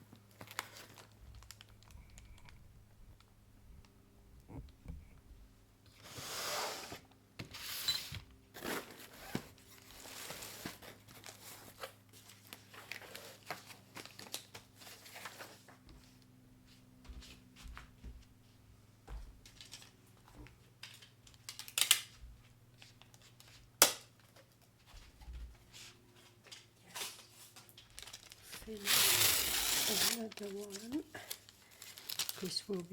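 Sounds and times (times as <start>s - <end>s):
packing material rustling and tearing: 0.3s - 2.6s, 8.6s - 15.6s, 27.0s - 32.9s.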